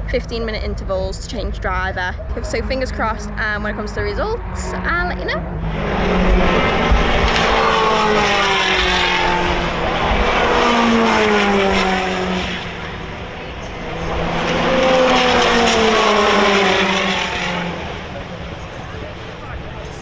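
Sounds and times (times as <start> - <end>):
race cars passing at speed: 0.0 - 20.0.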